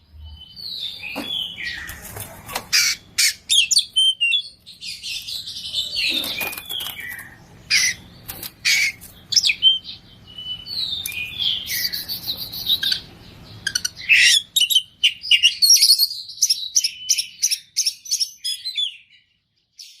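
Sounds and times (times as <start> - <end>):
bird singing varied whistles: 8.8 - 19.0.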